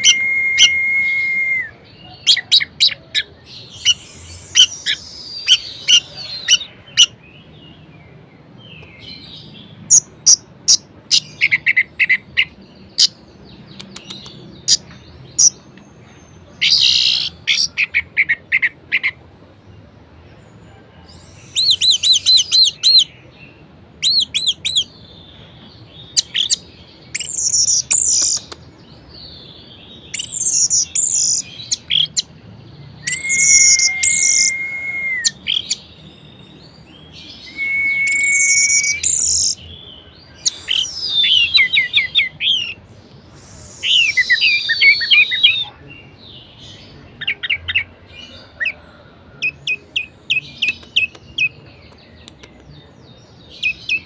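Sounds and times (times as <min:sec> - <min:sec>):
thrush singing whistled trills: 0:00.0 - 0:03.0, 0:03.6 - 0:07.1, 0:26.2 - 0:28.6, 0:30.1 - 0:32.3, 0:32.9 - 0:36.4, 0:37.1 - 0:45.9.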